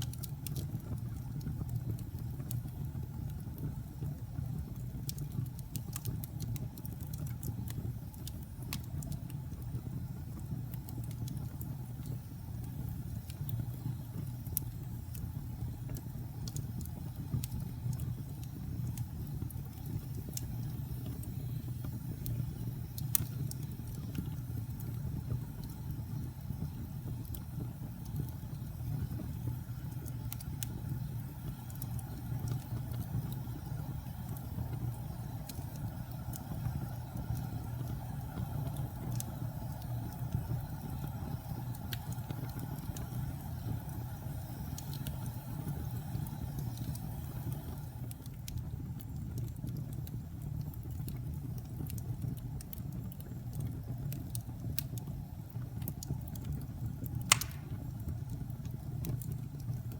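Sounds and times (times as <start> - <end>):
fire crackling in a fireplace: 0.0 - 59.9
loud pop of fire: 57.2 - 58.1.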